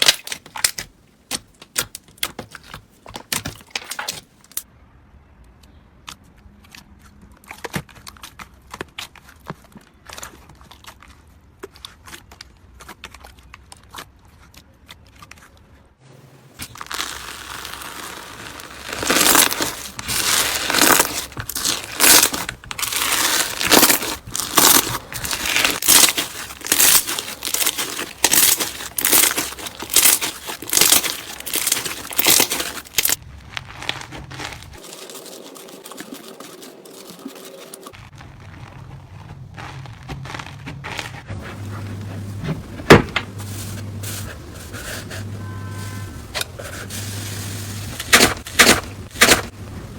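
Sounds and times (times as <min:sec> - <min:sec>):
slime squelching and popping: 0:16.6 - 0:41.2.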